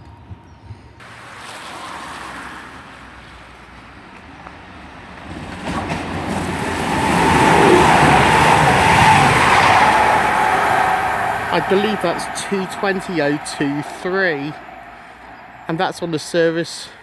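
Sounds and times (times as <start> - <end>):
train rushing past: 4.6 - 17.0
steady whine: 6.4 - 16.8.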